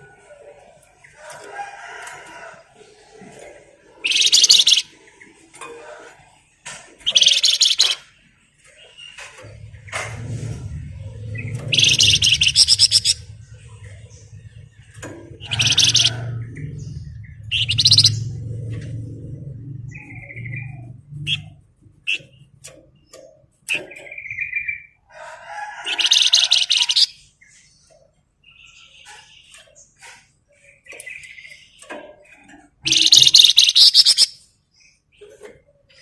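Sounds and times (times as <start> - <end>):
songbird rattling trills: 4.0 - 4.9, 7.0 - 8.1, 11.2 - 18.8, 31.0 - 34.4
bird whistled notes and clicks: 7.1 - 8.0, 32.8 - 34.4
low steady rumble: 9.3 - 22.8.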